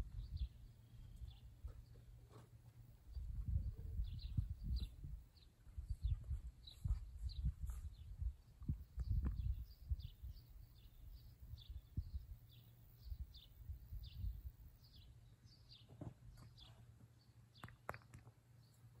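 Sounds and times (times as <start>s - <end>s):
wind rumble on microphone: 0.0s - 2.0s, 3.0s - 15.0s
bird chirping: 0.0s - 18.0s.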